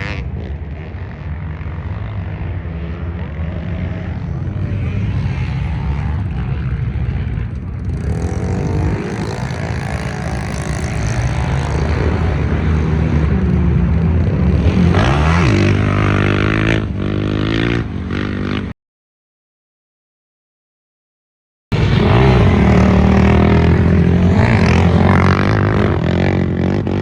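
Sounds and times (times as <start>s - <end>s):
racing engines running hard: 21.7s - 27.0s.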